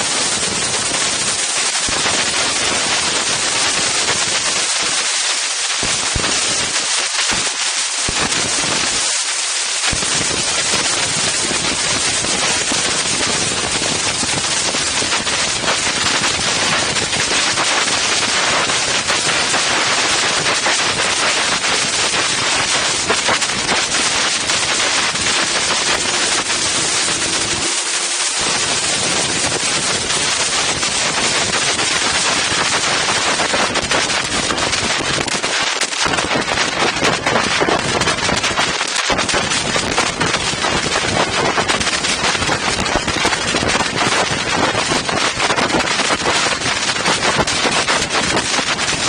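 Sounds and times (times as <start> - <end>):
wind buffeting microphone: 9.9 - 35.5, 36.2 - 49.0.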